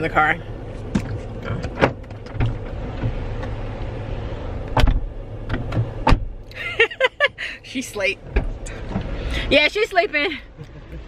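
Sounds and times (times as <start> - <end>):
car's low hum: 0.0 - 11.0
car door shutting: 0.8 - 3.9, 4.6 - 6.4, 8.3 - 9.3.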